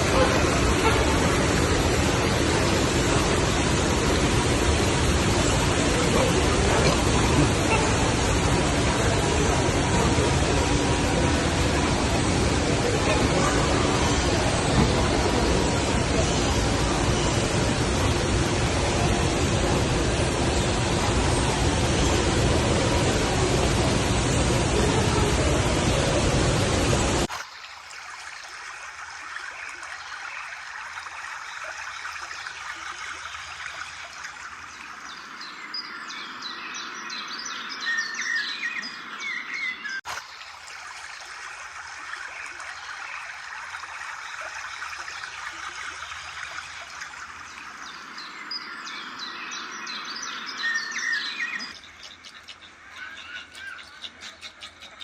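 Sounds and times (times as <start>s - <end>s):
rushing falling water: 0.0s - 55.0s
birds chirping: 44.2s - 55.0s.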